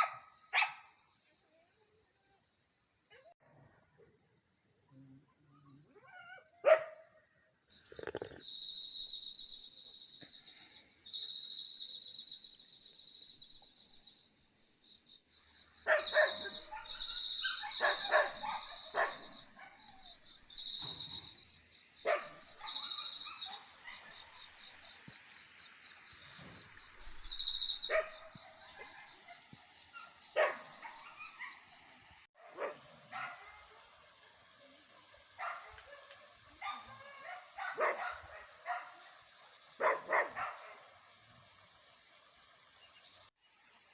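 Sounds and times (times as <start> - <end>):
dog barking: 0.0 - 1.0, 6.0 - 7.2, 15.8 - 20.2, 22.0 - 24.6, 27.9 - 31.7, 32.4 - 33.9, 35.1 - 39.2, 39.8 - 40.9.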